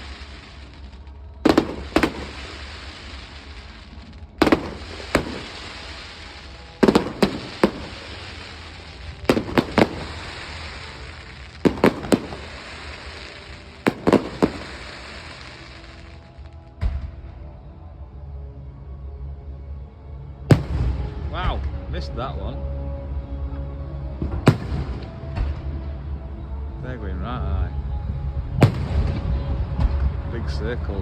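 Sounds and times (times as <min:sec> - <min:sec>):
fireworks bangs: 0:00.0 - 0:17.2, 0:20.5 - 0:21.8, 0:24.2 - 0:25.7, 0:28.6 - 0:30.8
fireworks crackling hiss: 0:00.0 - 0:17.2, 0:24.4 - 0:25.7, 0:28.6 - 0:31.0.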